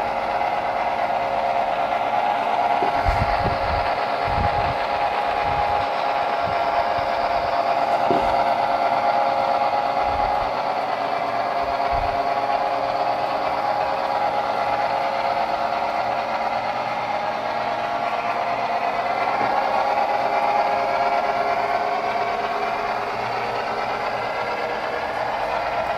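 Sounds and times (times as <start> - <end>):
electric motor whine: 0.0 - 25.9
wheels rattling on rails: 0.0 - 25.9.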